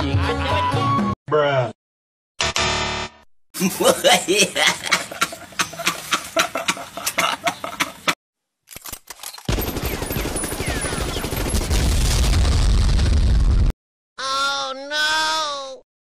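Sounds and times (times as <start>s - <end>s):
man laughing: 3.6s - 8.2s
rapid machine-gun fire: 9.5s - 13.1s.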